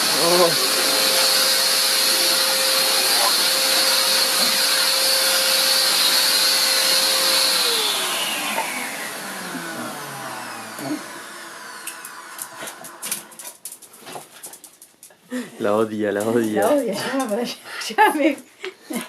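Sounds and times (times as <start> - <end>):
vacuum cleaner motor whine: 0.0 - 13.2.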